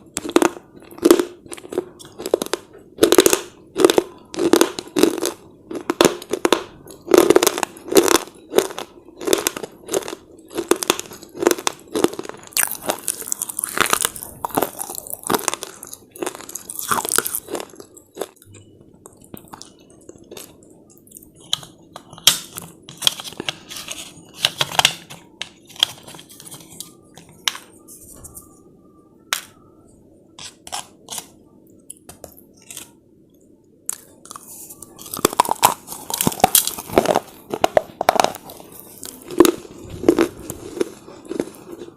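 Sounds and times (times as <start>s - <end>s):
chips being bitten and chewed: 0.1s - 18.5s, 33.9s - 41.9s.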